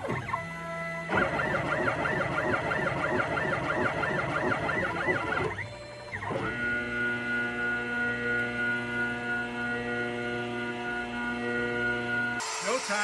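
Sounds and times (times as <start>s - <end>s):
stepper motors whining: 0.0s - 7.8s.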